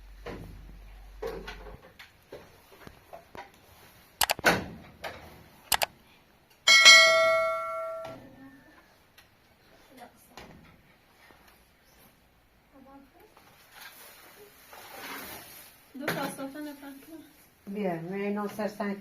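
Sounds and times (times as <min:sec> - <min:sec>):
loud metallic ringing: 0:06.7 - 0:08.2.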